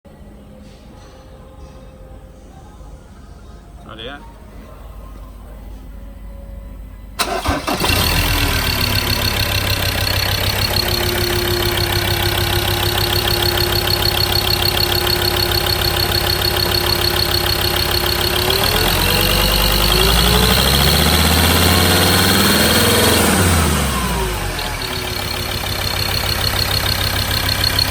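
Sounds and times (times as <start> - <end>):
diesel engine starting and idling: 7.1 - 27.9.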